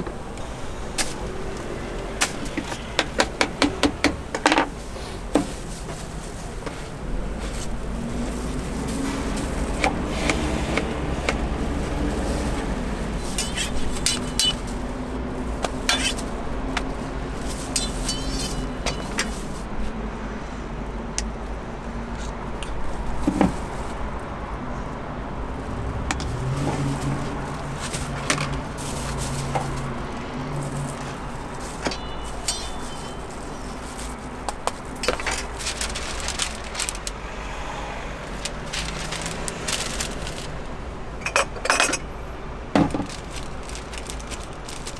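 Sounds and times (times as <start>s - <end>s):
utensils and dishes clinking: 0.0s - 19.8s, 25.6s - 37.1s, 38.3s - 42.1s.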